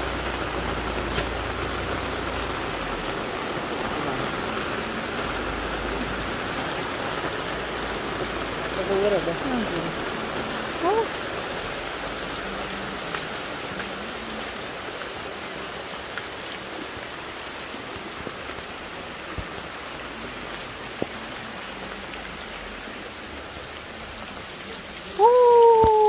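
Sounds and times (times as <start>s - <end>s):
steady rain: 0.0s - 26.0s
person calling out loudly: 3.9s - 4.6s, 10.8s - 11.1s, 25.2s - 26.0s.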